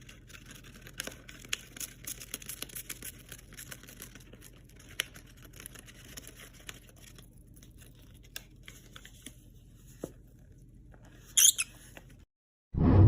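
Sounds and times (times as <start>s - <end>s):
high-pitched bird chirps: 11.4s - 11.7s.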